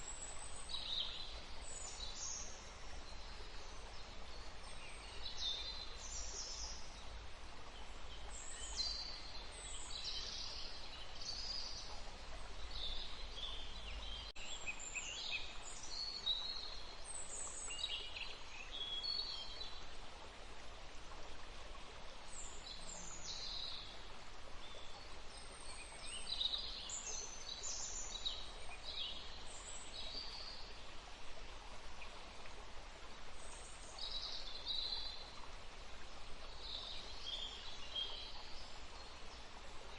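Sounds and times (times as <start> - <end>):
songbirds chirping and trilling: 0.0 - 19.8
forest stream rushing: 0.0 - 39.9.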